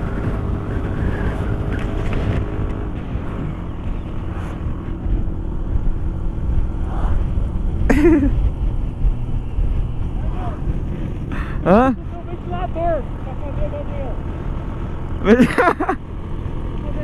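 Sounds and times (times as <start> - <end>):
motorcycle engine running: 0.0 - 17.0
road and wind rumble: 0.0 - 17.0.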